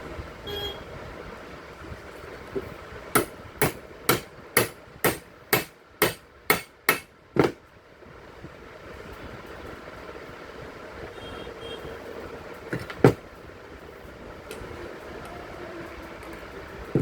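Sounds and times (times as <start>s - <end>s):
sharp hammer strikes: 3.2s - 7.6s.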